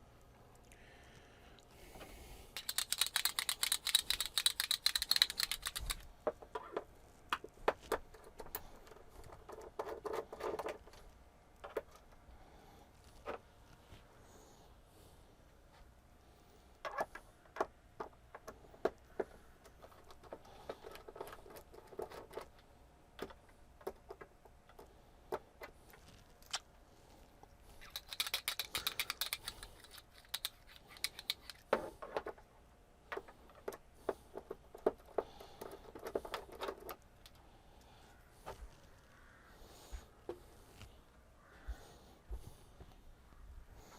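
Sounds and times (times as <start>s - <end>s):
screwdriver and plastic handled: 2.5s - 11.0s, 27.7s - 32.5s
rattling clicks: 2.6s - 6.0s
screws clicking: 2.6s - 6.0s, 27.8s - 31.6s.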